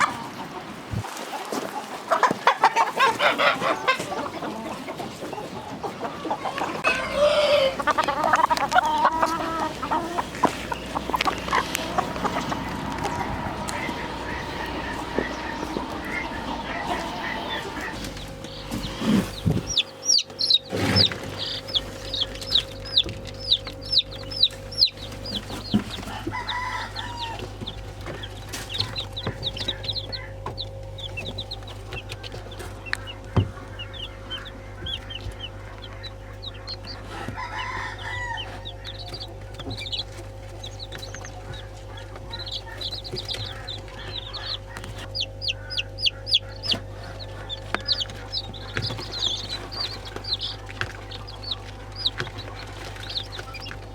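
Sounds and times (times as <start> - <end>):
chickens chirping: 0.0 - 53.9
longer chicken calls: 0.0 - 53.9
steady low hum: 3.8 - 53.9.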